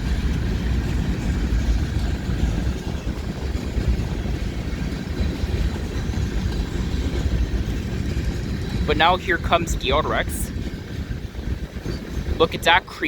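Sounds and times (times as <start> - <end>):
freight train wheels rumbling on rails: 0.0 - 13.0.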